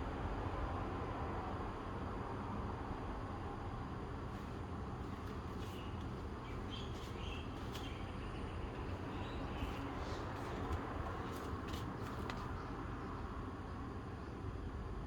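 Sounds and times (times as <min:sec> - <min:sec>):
faint bird chirps: 0:05.8 - 0:10.6.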